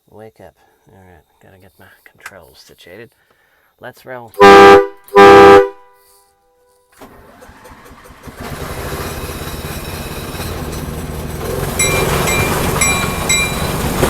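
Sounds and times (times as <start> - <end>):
model train running rumble: 7.0 - 14.0
bell ringing: 11.8 - 14.0.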